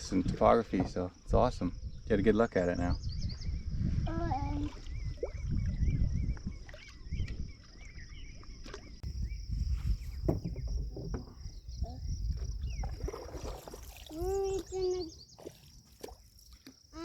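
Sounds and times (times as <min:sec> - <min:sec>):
paddle knocks and splashes: 0:08.6 - 0:16.8.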